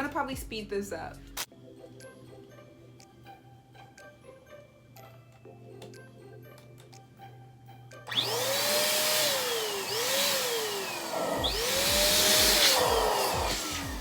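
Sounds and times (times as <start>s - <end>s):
electric balloon pump blowing air: 8.1s - 14.0s.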